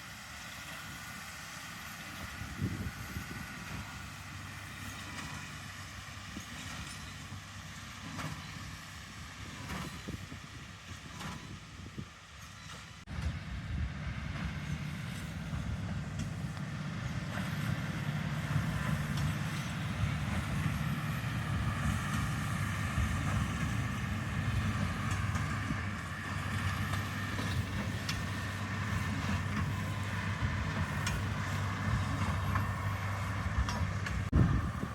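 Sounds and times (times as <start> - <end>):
heavy machinery engine humming: 0.0 - 34.9.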